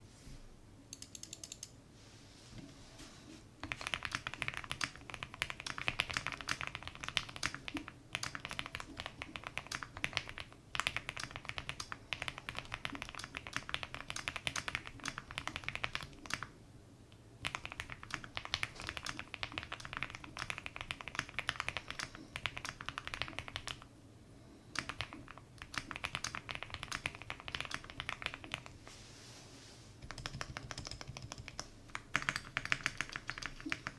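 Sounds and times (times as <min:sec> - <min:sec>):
mechanical keyboard typing: 0:03.6 - 0:16.5, 0:17.4 - 0:23.9, 0:24.8 - 0:28.7, 0:30.0 - 0:33.9.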